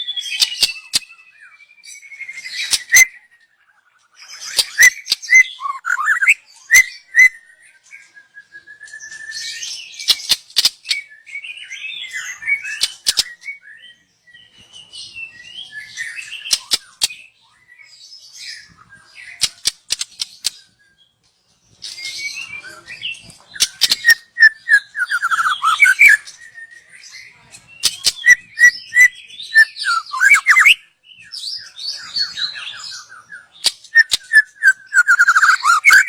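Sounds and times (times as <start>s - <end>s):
bird singing whistled phrases: 0.0s - 19.6s, 21.8s - 36.0s.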